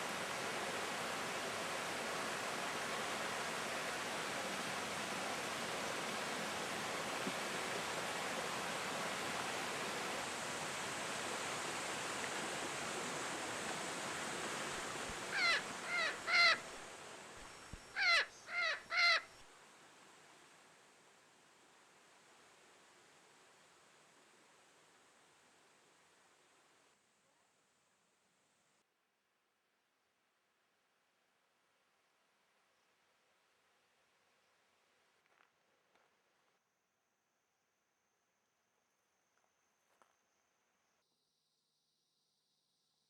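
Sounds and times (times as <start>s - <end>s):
rushing forest ambience: 0.0s - 27.0s
bird calls: 15.3s - 16.6s, 17.5s - 19.3s.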